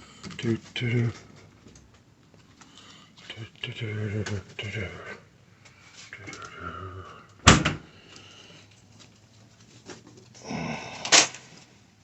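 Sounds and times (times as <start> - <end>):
door or lid banging shut: 7.4 - 7.8
rustling and shuffling: 8.0 - 10.4.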